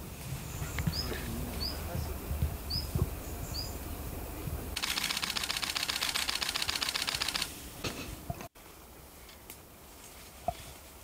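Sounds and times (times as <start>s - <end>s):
small bird chirping: 2.7s - 3.9s
dry rapid rattle of clicks: 4.8s - 7.5s.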